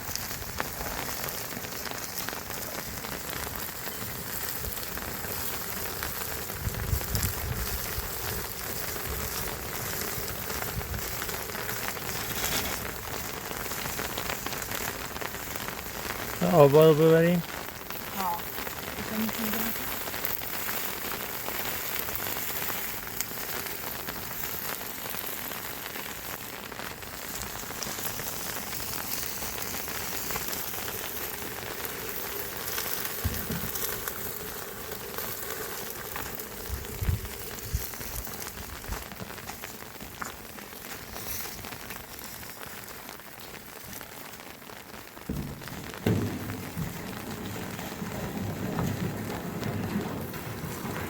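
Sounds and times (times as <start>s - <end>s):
steady hiss of water: 0.0s - 51.0s
dull thumps: 45.3s - 51.0s.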